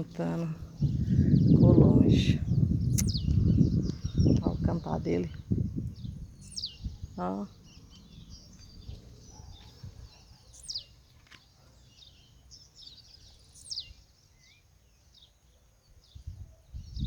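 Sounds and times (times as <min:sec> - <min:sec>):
other birds chirping: 0:00.0 - 0:17.0.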